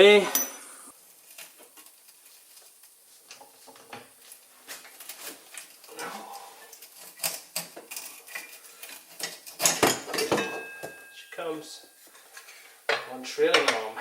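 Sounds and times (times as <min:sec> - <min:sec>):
metal tools clinking and clanking: 0:07.2 - 0:11.3.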